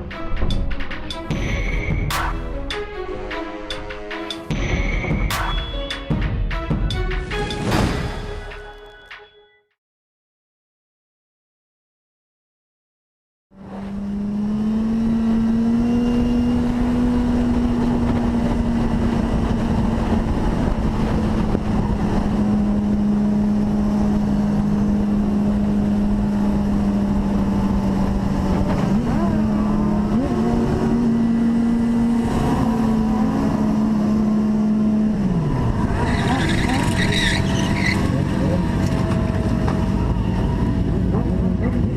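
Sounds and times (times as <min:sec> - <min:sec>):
vehicle engine running: 0:13.5 - 0:41.9.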